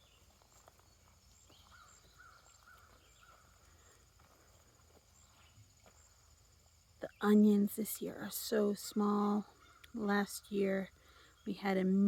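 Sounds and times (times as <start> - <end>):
faint bird chirps: 0.0 - 6.2
faint outdoor ambience: 0.0 - 12.0.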